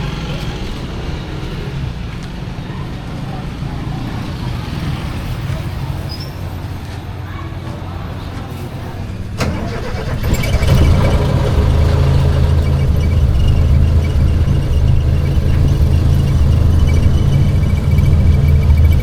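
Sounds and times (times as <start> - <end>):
jeep engine rumbling: 8.1 - 19.0.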